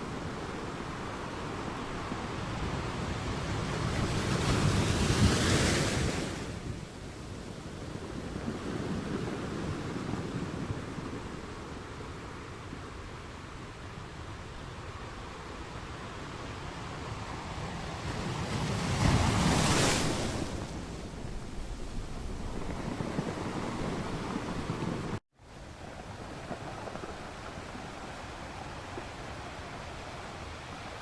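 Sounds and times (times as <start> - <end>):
light surf washing: 0.0 - 31.0
ocean waves breaking: 17.0 - 25.2.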